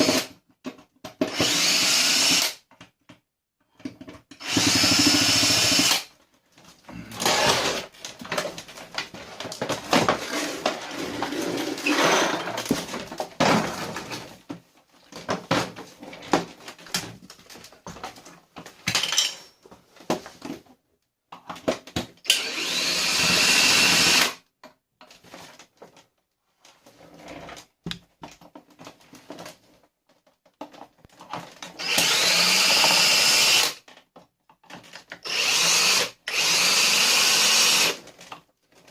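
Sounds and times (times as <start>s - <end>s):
power drill whirring: 1.3s - 2.6s, 4.4s - 6.1s, 7.2s - 7.9s, 22.3s - 24.4s, 31.8s - 33.8s, 35.2s - 38.0s
plastic parts rattling and scraping: 2.7s - 5.4s, 6.1s - 22.2s, 24.6s - 31.9s, 33.8s - 35.2s, 38.0s - 38.9s.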